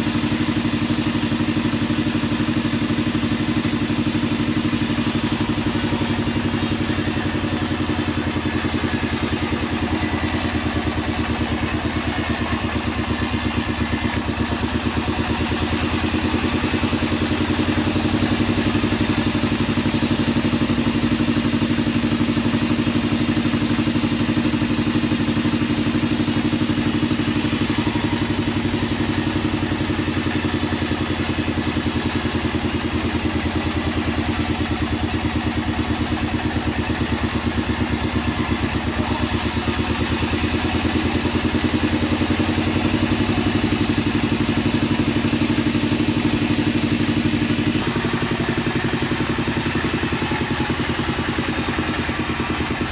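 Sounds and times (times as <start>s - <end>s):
sawmill engine running: 0.0s - 52.9s.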